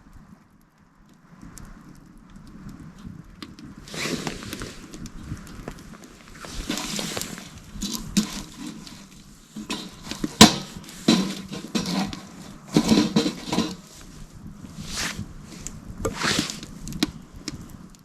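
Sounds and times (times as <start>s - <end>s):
scuffs and knocks of handling: 5.7s - 17.0s.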